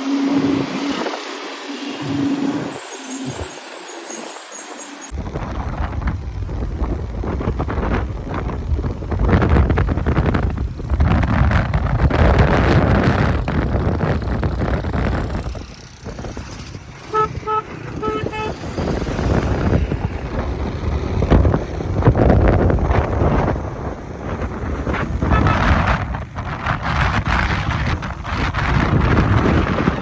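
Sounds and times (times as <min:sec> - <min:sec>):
wind rushing over microphone: 0:00.0 - 0:03.6, 0:05.1 - 0:30.0
motorcycle road noise: 0:00.0 - 0:30.0
vehicle horn short beeps: 0:17.1 - 0:18.7, 0:25.0 - 0:25.7.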